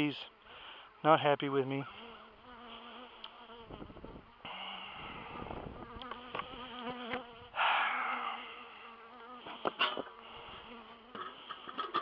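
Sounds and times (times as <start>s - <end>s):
honey bees buzzing: 0.0s - 12.0s.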